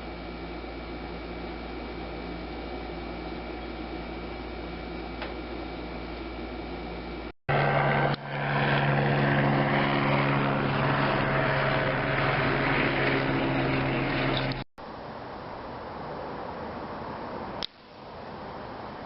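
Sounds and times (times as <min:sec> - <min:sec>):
loud engine drone: 0:06.5 - 0:14.7.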